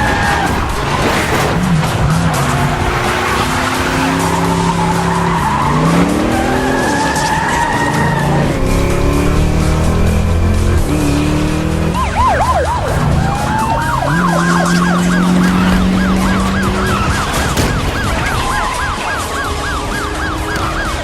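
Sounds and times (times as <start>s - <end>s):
car engines revving: 0.0s - 21.0s.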